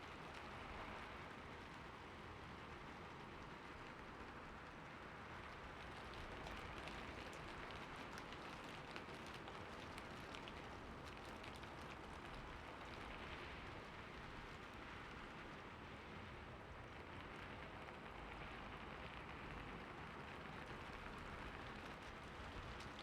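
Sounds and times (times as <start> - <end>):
rain falling: 5.3 - 16.0, 19.2 - 23.0.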